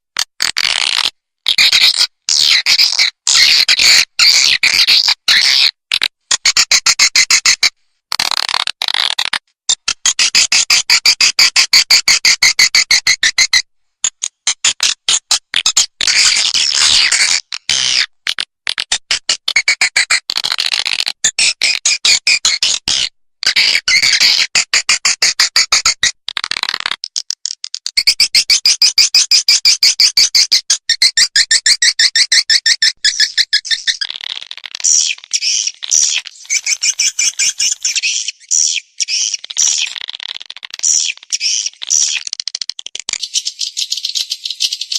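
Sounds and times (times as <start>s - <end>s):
high clicking bird chirps: 0.7s - 7.7s, 9.0s - 18.0s, 18.7s - 44.9s
sharp high bird chirps: 31.6s - 34.2s, 34.8s - 40.1s, 40.8s - 42.3s, 43.1s - 44.9s
bird twittering: 32.1s - 34.2s, 34.8s - 42.3s, 43.1s - 44.9s.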